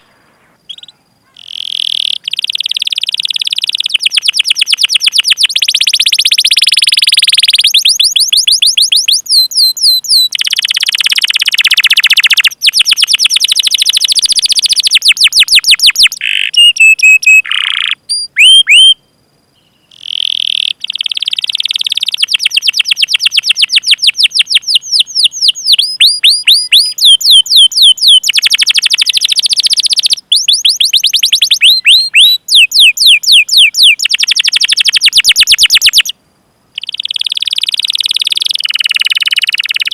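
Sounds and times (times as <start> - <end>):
canary singing in trills: 0.7 - 36.1, 36.8 - 39.9.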